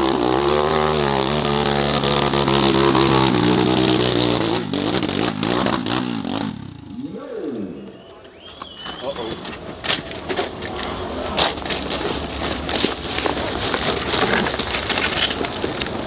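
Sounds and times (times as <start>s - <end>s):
dirt bike engine revving: 0.0s - 7.9s.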